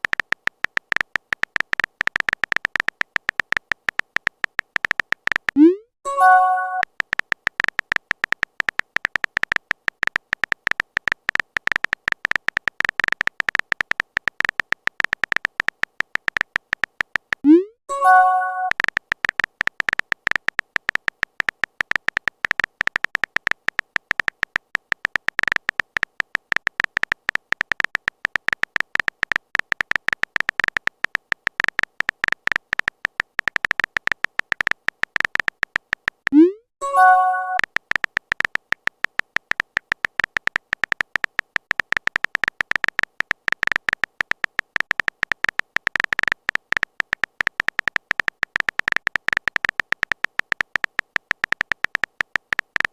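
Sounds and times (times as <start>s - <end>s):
phone keyboard typing clicks: 0.0s - 52.9s
rising notification chime: 5.6s - 6.8s, 18.0s - 18.7s, 36.4s - 37.6s.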